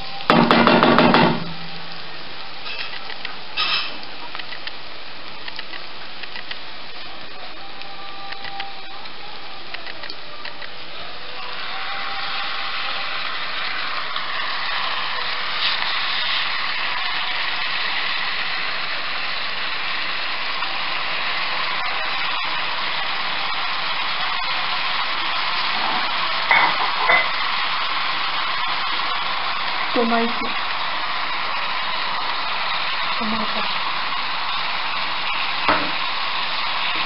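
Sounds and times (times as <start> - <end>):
chicken sizzling in a pot: 11.3 - 29.1.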